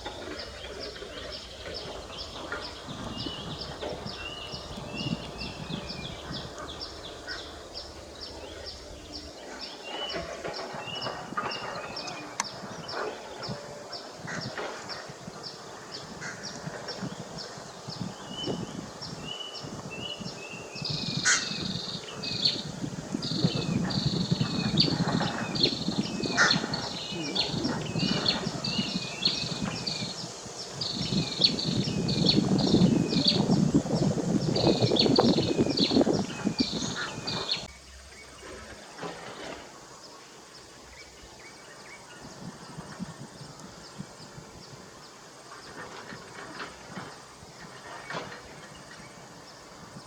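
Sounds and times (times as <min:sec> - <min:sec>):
bird rolling trills: 0:00.0 - 0:13.6, 0:20.3 - 0:37.7
birds calling sharp high calls: 0:00.0 - 0:37.7
wind rumble: 0:00.0 - 0:38.4, 0:42.0 - 0:50.0.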